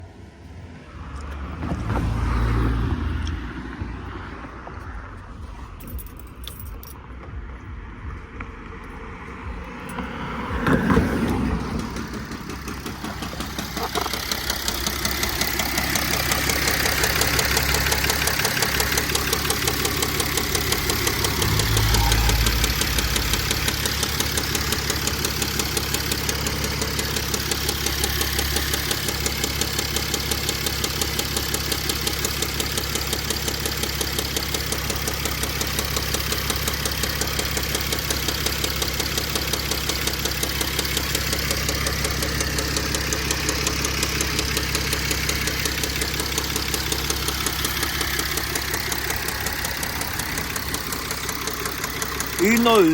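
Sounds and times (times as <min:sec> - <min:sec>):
diesel engine running: 0:00.1 - 0:52.9
rapid engine knocking: 0:10.7 - 0:52.9.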